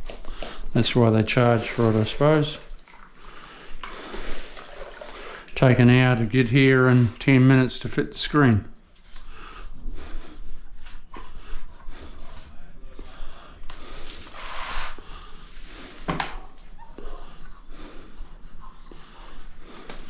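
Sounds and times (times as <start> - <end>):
grout scraping across tiles: 0.2 - 2.8, 6.6 - 7.3, 9.0 - 20.0.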